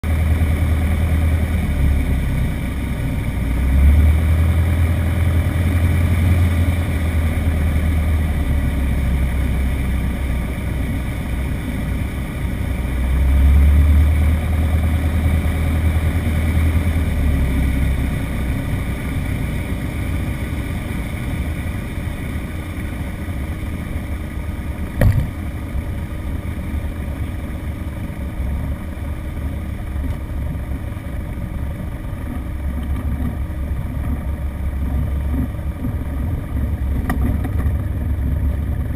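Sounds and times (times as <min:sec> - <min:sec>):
light aircraft engine droning: 0:00.0 - 0:38.9
sharp knock: 0:25.0 - 0:25.3.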